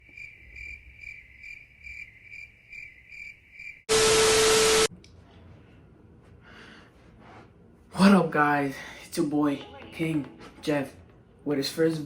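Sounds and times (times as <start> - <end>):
loud static hiss: 3.9 - 4.9.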